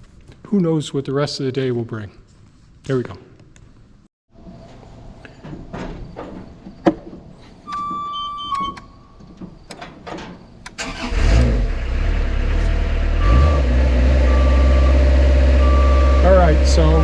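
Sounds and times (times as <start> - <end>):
alarm short beeps: 7.7 - 8.9, 13.2 - 17.0
held beep: 7.7 - 8.9, 14.3 - 15.0, 15.6 - 16.9
lift engine running: 10.7 - 17.0.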